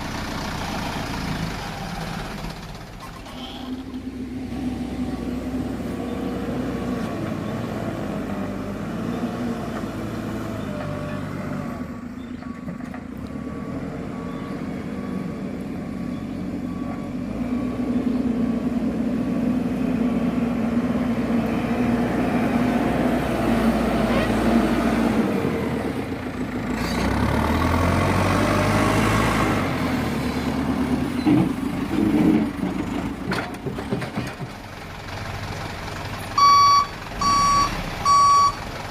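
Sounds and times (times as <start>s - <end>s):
diesel truck engine running: 0.0s - 38.9s
reversing alarm beeping: 36.4s - 38.6s.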